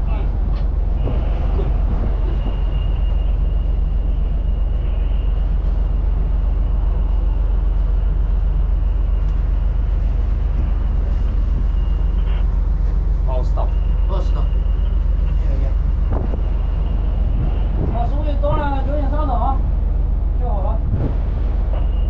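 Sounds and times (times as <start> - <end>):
wind rumbling on microphone: 0.0 - 13.1, 14.8 - 22.0.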